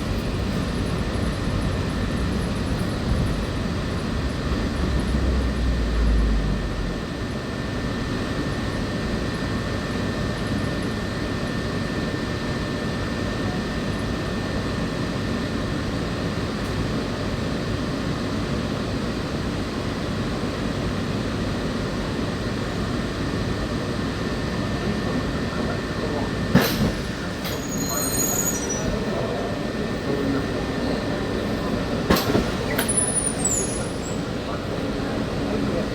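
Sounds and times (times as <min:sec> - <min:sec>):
monorail running rumble and hiss: 0:00.0 - 0:35.9
faint high whine: 0:24.6 - 0:35.9.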